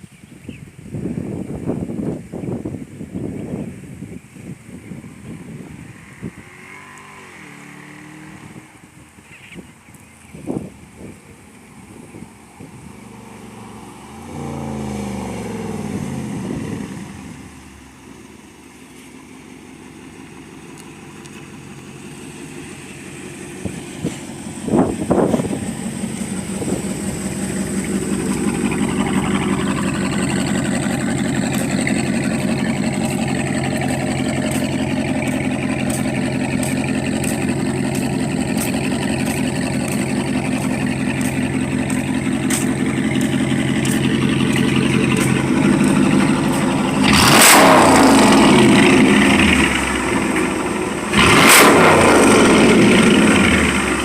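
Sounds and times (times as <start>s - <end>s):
car engine exhaust revving: 4.5s - 9.2s, 10.3s - 18.4s, 19.4s - 54.0s
car engine idling: 8.7s - 54.0s.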